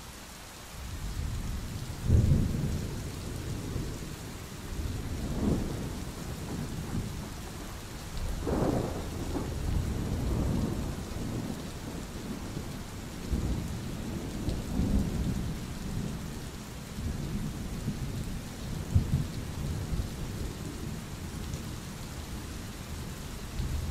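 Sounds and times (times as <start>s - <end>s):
rain falling: 0.0s - 23.9s
thunder rumbling: 2.0s - 7.7s, 8.4s - 16.4s.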